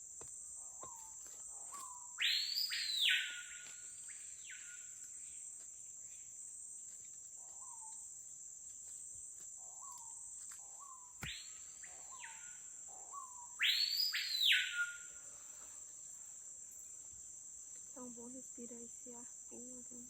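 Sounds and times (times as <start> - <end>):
high insect drone: 0.0 - 20.0
bird whistling loudly: 2.2 - 3.6, 13.6 - 15.1.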